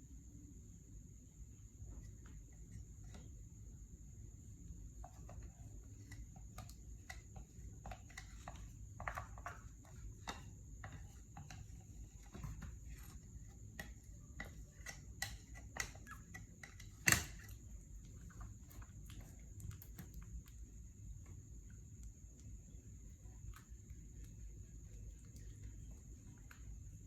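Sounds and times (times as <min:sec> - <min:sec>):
faint steady hum: 0:00.0 - 0:27.0
light clicks and taps: 0:13.8 - 0:27.0.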